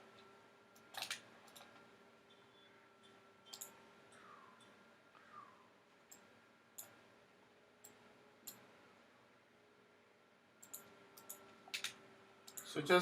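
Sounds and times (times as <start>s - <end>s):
faint steady hum: 0.0s - 13.0s
computer mouse clicking: 0.8s - 1.8s, 3.5s - 4.8s, 7.8s - 8.7s, 10.6s - 12.7s.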